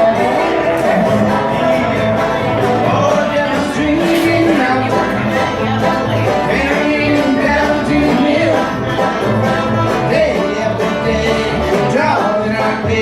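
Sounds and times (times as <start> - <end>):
bluegrass string band playing: 0.0 - 13.0
low bass notes: 0.0 - 13.0.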